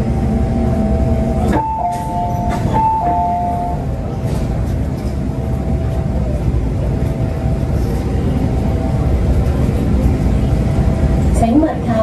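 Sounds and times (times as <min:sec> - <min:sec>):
train car low rumble: 0:00.0 - 0:12.0.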